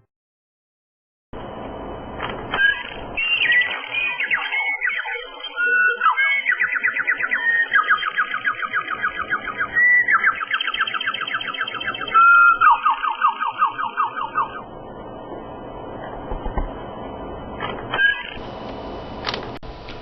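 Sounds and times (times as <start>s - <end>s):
linnet song with fast trills: 2.6s - 14.6s.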